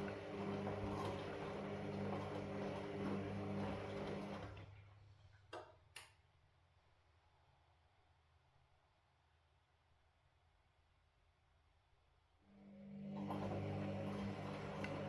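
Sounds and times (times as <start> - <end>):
washing machine running: 0.0 - 4.9, 12.6 - 15.0.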